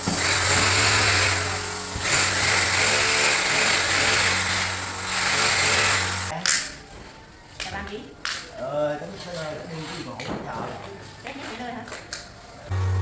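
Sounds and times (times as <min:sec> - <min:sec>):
power tool grinding: 0:00.0 - 0:06.3, 0:12.7 - 0:13.0.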